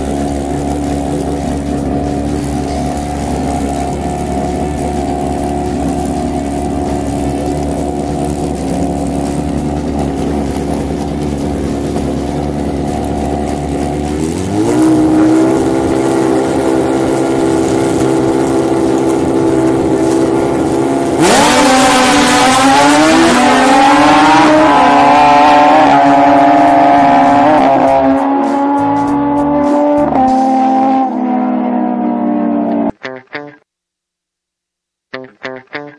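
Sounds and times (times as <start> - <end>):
motorcycle engines idling and revving: 0.0 - 33.0.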